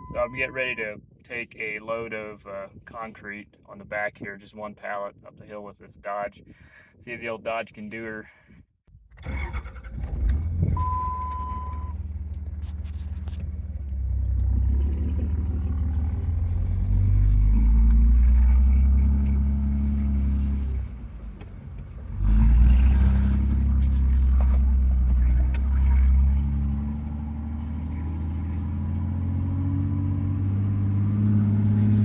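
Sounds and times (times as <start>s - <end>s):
short steady beep: 0.0s - 0.8s, 10.8s - 12.0s
pickup engine pulling under load: 9.2s - 32.0s.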